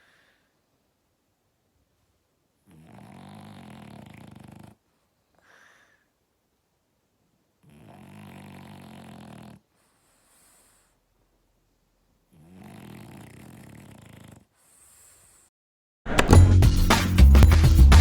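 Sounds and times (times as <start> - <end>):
puppy snoring: 2.6 - 5.9, 7.6 - 11.1, 12.2 - 15.5.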